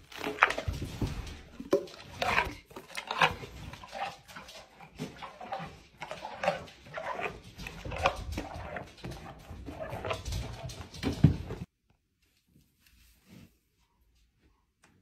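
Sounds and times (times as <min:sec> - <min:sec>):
cow crunching an apple: 0:00.0 - 0:10.9.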